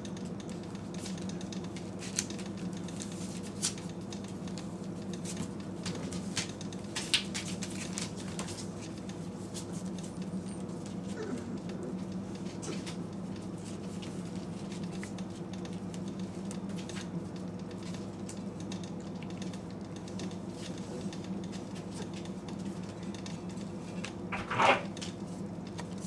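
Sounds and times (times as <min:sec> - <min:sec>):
puppy claws clicking on floor: 0:00.0 - 0:24.3
microwave oven humming: 0:00.0 - 0:26.0.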